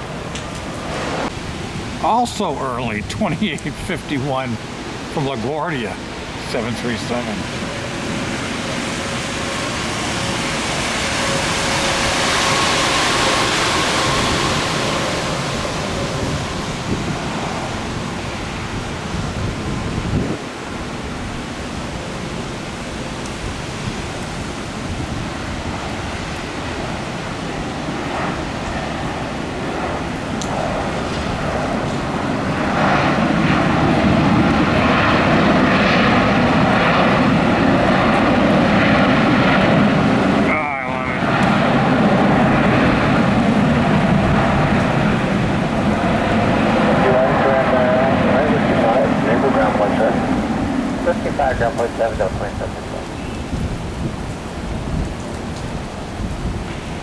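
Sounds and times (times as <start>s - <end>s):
jet engines rushing: 0.0s - 57.0s
faint steady whine: 24.6s - 53.6s.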